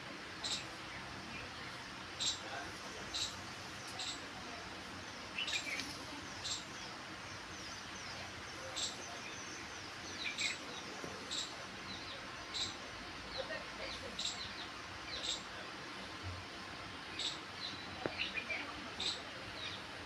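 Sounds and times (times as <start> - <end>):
steady outdoor hiss: 0.0 - 20.0
small birds chirping: 0.4 - 20.0.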